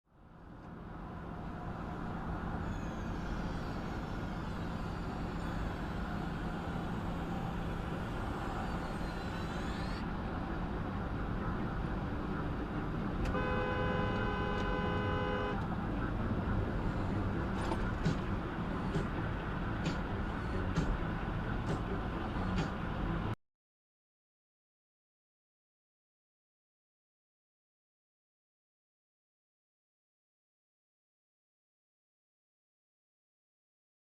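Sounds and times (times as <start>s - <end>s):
car road and engine noise: 0.1s - 23.4s
car horn: 13.2s - 15.7s.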